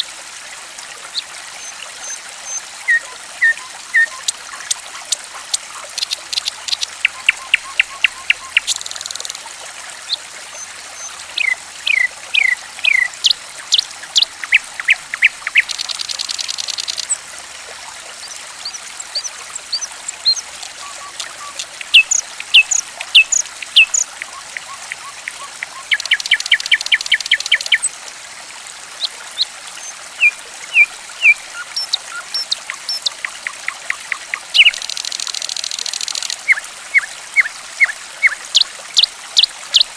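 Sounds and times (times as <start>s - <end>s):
running water trickling: 0.0s - 39.9s
songbirds chirping: 5.8s - 9.4s, 10.1s - 17.2s, 18.2s - 27.9s, 29.0s - 38.4s.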